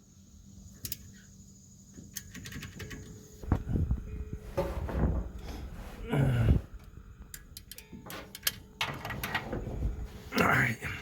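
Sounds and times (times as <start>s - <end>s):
sharp metallic clicks: 0.8s - 1.1s.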